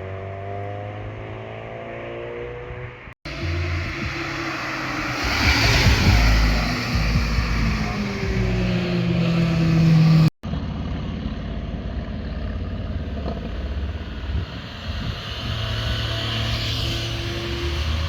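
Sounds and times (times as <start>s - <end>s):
car engine accelerating hard: 0.0s - 10.4s, 12.0s - 18.0s
car engine running evenly: 3.2s - 16.3s.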